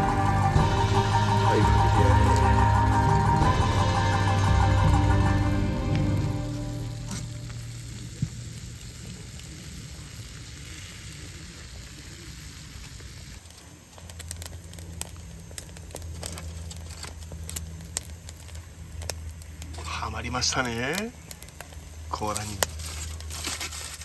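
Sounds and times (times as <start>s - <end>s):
background music: 0.0s - 8.0s
low hum: 0.0s - 10.2s
food sizzling in a pan: 5.0s - 13.4s.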